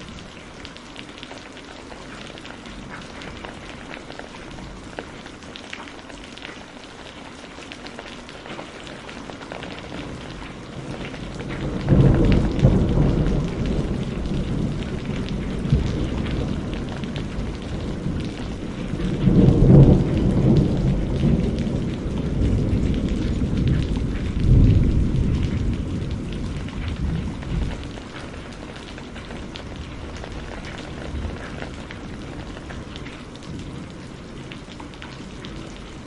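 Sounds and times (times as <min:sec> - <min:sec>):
steady rain: 0:00.0 - 0:36.0
thunder rumbling: 0:09.6 - 0:36.0.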